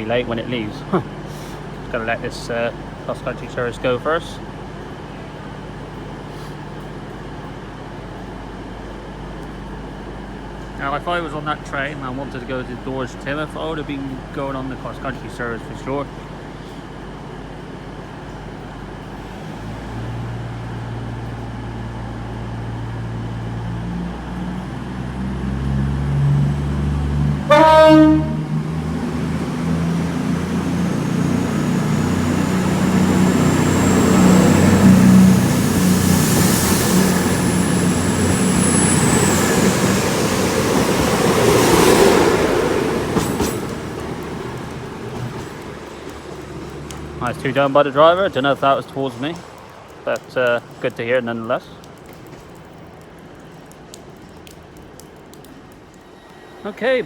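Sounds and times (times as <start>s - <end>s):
diesel train engines accelerating: 0.0s - 52.6s, 55.5s - 57.0s
train horn blast: 27.4s - 28.6s.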